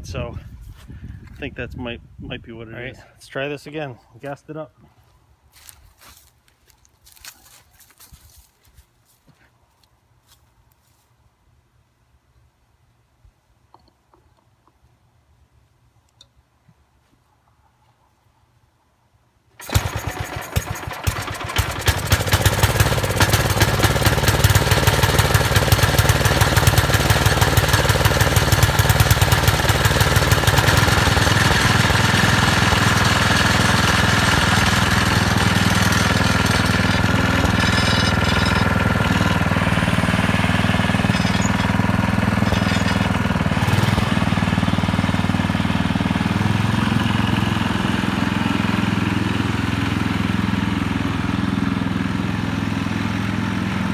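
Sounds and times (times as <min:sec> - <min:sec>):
garden tractor engine running: 0:19.6 - 0:53.9.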